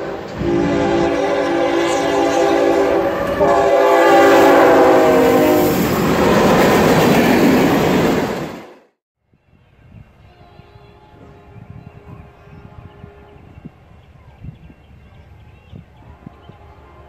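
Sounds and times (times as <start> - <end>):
locomotive air horn blasts: 0.0 - 6.4, 10.2 - 13.6, 16.0 - 17.0.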